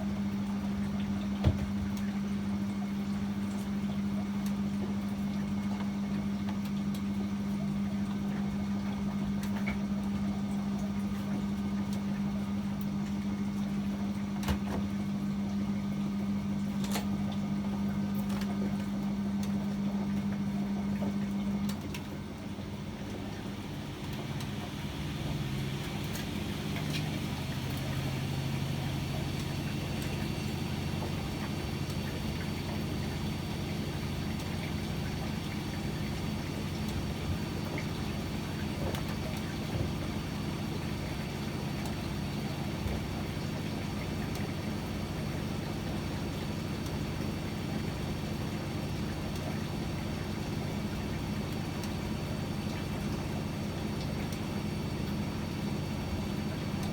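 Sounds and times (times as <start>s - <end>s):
washing machine humming: 0.0s - 56.9s.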